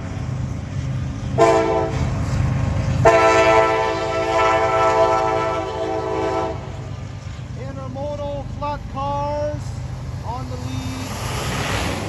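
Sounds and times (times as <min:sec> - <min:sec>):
diesel locomotive rumbling: 0:00.0 - 0:12.0
locomotive air horn: 0:01.4 - 0:02.0, 0:03.0 - 0:06.9.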